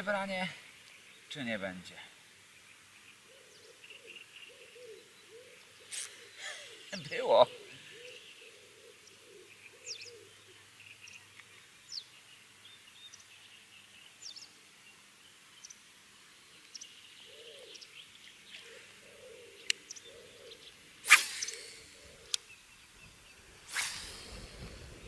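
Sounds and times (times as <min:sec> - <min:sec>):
birds chirping: 0:00.0 - 0:25.0
lower warbling bird call: 0:18.6 - 0:25.0
sharp click: 0:21.1 - 0:22.5.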